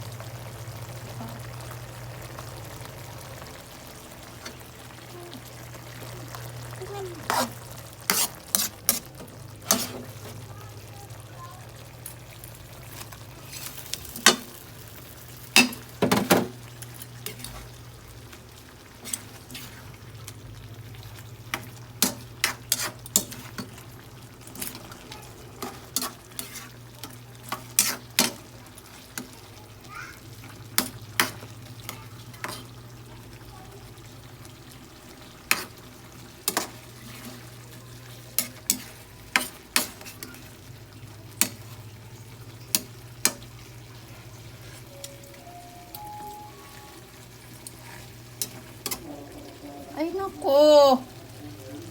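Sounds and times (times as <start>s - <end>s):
food cooking in a pan: 0.0s - 51.9s
utensil scraping against pan: 7.2s - 10.4s, 12.9s - 14.5s, 19.0s - 19.9s, 21.5s - 23.8s, 25.6s - 26.8s, 27.4s - 28.4s, 35.4s - 35.8s, 36.4s - 40.5s.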